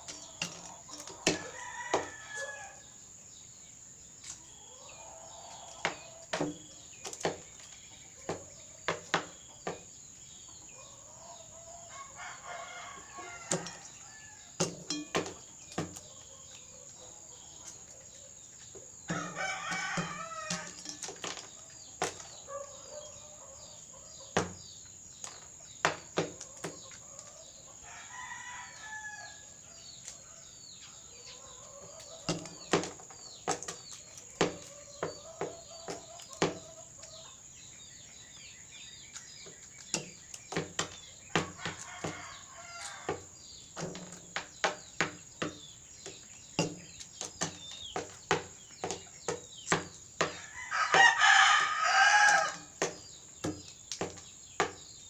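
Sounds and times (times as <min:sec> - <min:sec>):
rooster crowing: 0:01.3 - 0:02.9, 0:10.9 - 0:14.5, 0:19.1 - 0:20.8, 0:27.8 - 0:30.5, 0:50.3 - 0:52.8.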